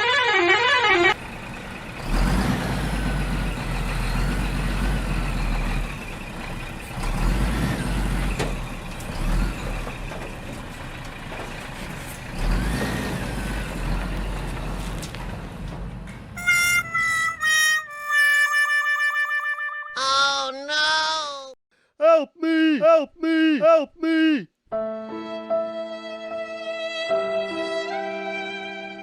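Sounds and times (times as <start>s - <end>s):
heavy vehicle engine rumble: 1.1s - 18.3s.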